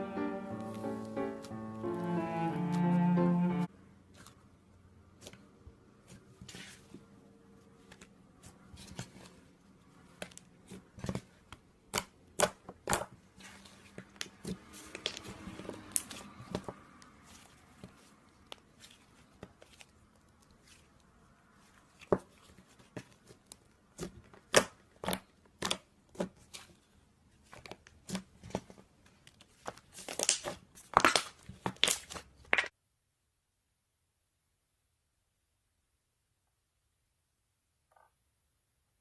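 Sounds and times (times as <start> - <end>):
slime squished by hand: 10.1 - 32.7.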